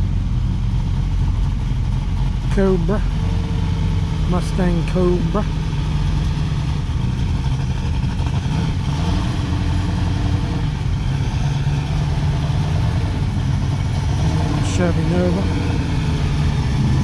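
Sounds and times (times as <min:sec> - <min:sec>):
car engines driving slowly past: 0:00.0 - 0:17.0.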